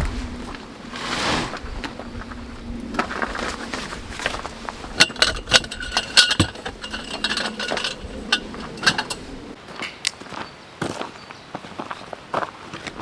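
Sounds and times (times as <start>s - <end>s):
hard objects clinking together: 4.9s - 9.6s.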